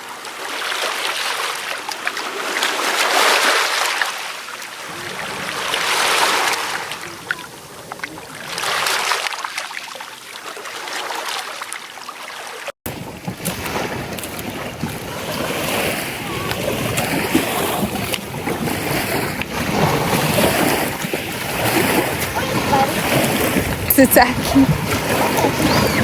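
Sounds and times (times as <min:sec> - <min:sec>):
ocean surf washing onto beach: 0:00.3 - 0:09.3, 0:12.9 - 0:26.0
wind on microphone: 0:12.9 - 0:26.0.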